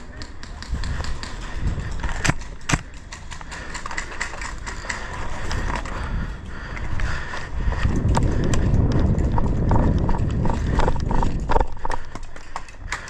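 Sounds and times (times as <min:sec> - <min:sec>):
sharp cracks: 0:00.0 - 0:05.2
clicks and knocks of gear: 0:00.0 - 0:13.0.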